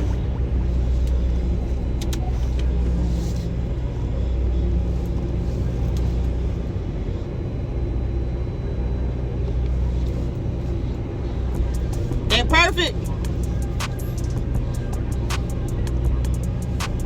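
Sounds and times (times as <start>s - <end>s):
truck engine idling low: 0.0s - 17.0s.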